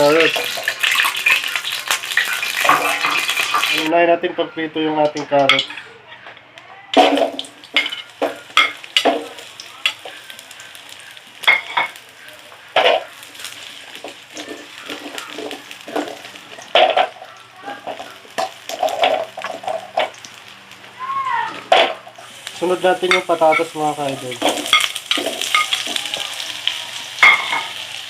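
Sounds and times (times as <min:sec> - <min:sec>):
carrots sizzling in oil: 0:00.0 - 0:03.9, 0:06.9 - 0:28.0.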